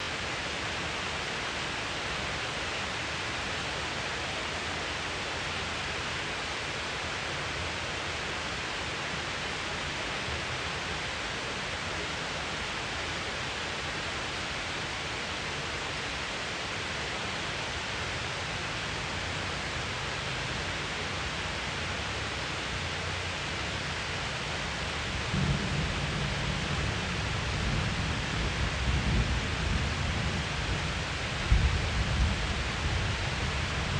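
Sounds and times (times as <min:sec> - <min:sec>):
heavy rain: 0:00.0 - 0:33.9
thunder rumbling: 0:25.2 - 0:33.9.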